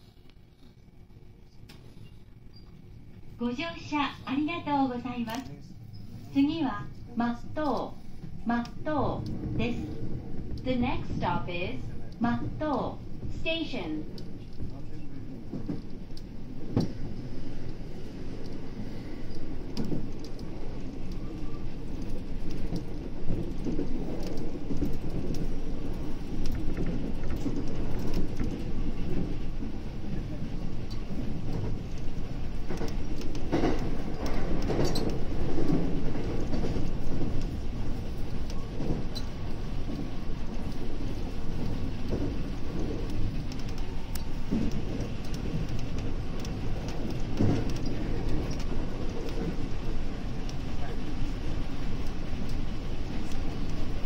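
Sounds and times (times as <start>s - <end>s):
rumble of wheels on rail: 0.0s - 54.0s.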